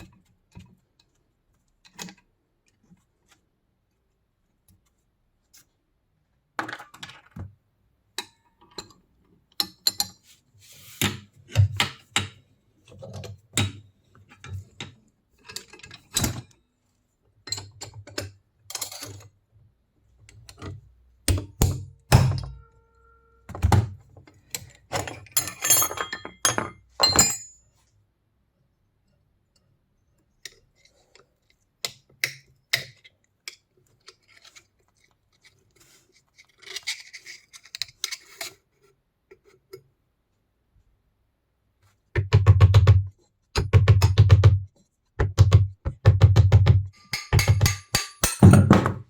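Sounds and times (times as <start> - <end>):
metal tools knocking and clinking: 24.9 - 27.6, 46.9 - 49.0.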